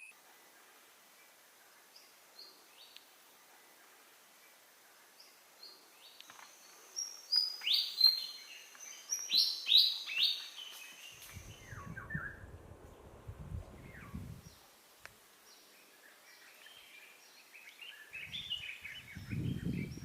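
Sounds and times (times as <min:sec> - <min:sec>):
birds chirping: 0:00.0 - 0:14.7, 0:15.4 - 0:20.0
low rumble: 0:11.3 - 0:14.5.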